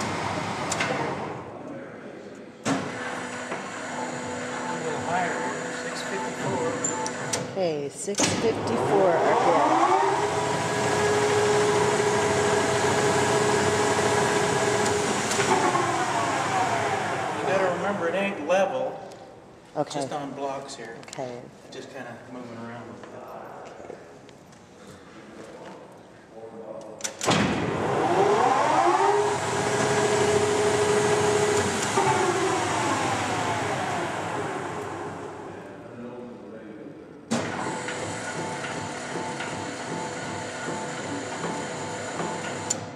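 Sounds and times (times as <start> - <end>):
lathe running with steady whine: 8.7 - 18.0, 27.8 - 35.6, 37.6 - 42.9.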